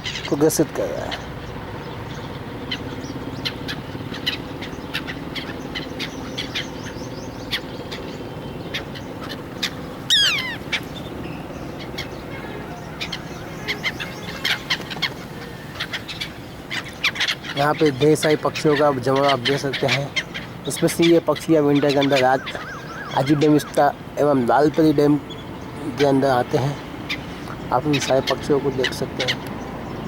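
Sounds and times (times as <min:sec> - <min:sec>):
flock of birds chirping: 0:00.0 - 0:30.0
bird call falling in pitch: 0:09.6 - 0:10.6, 0:22.3 - 0:23.8.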